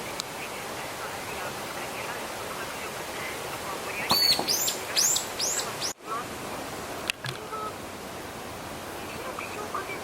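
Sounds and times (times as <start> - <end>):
background hiss: 0.0 - 10.0
bird chirping: 3.9 - 6.0.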